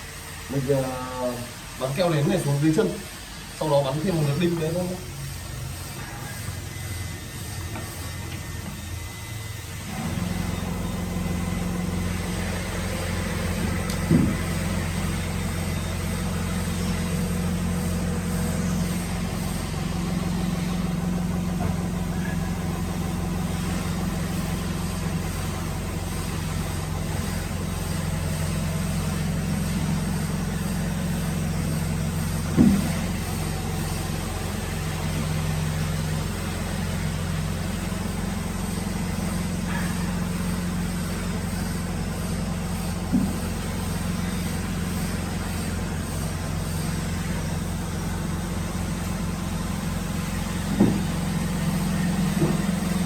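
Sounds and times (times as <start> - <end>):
woodworking machine motor hum: 0.0 - 53.0
sharp knocks: 32.5 - 33.0, 50.7 - 51.2.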